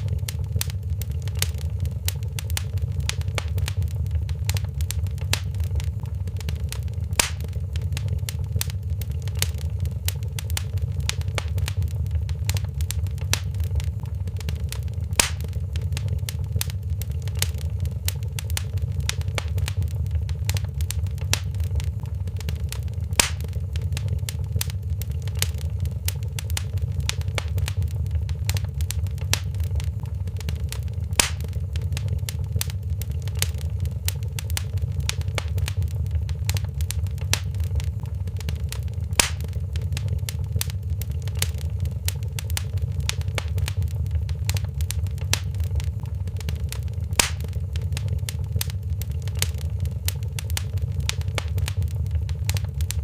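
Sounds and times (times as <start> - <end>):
loud fire pop: 0.0 - 22.0, 22.6 - 40.7, 47.0 - 48.8
fireplace fire crackling: 0.0 - 53.0
low fire rumble: 0.0 - 53.0.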